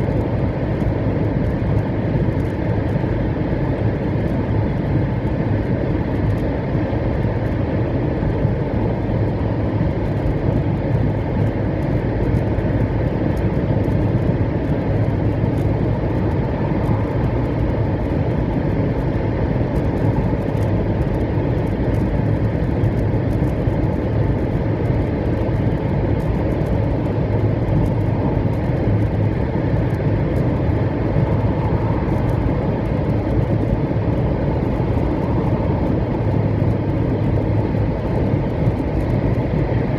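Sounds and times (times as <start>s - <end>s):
low hum: 12.2s - 39.9s.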